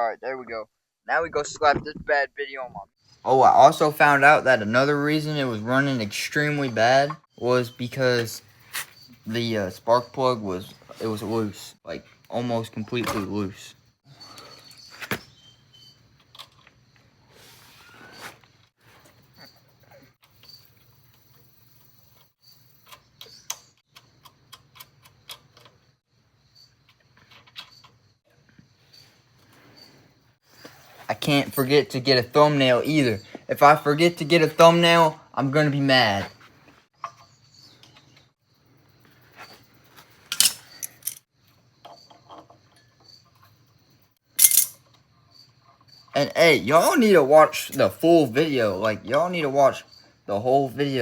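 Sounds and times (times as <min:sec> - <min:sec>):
small hard objects clattering: 0:40.3 - 0:41.2, 0:44.4 - 0:44.8.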